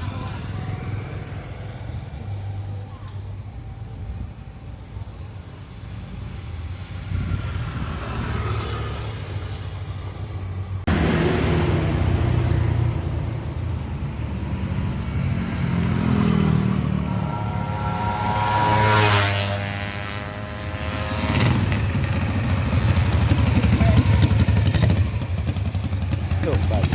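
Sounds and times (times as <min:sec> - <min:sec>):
small engine running: 0:11.9 - 0:26.9.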